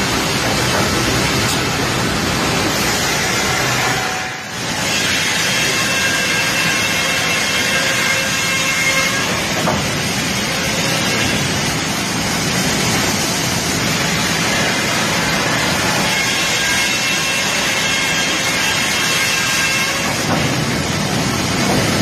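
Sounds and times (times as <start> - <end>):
wood chipper running: 0.0 - 8.6, 9.2 - 22.0.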